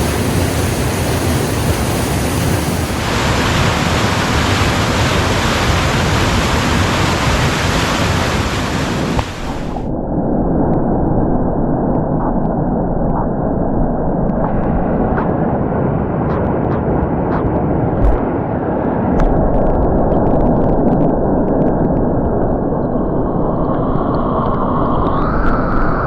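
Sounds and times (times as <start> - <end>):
waterfall rushing: 0.0 - 9.9.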